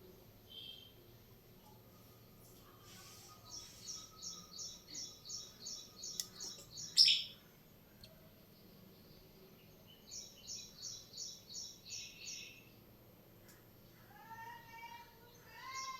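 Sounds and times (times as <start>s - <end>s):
bird chirping: 3.3s - 7.4s.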